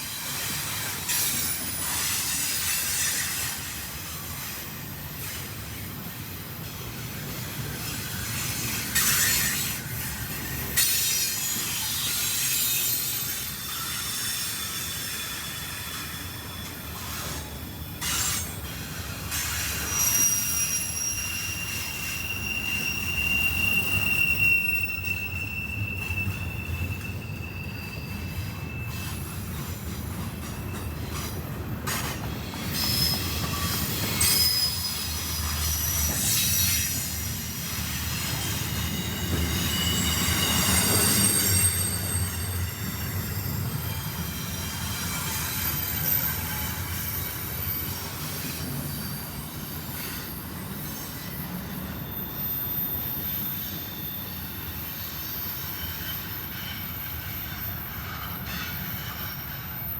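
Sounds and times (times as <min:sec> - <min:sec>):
freight train rolling past: 0:00.0 - 0:59.9
train wheels squealing: 0:00.0 - 0:59.9
wheels clicking over rail joints: 0:28.1 - 0:34.7.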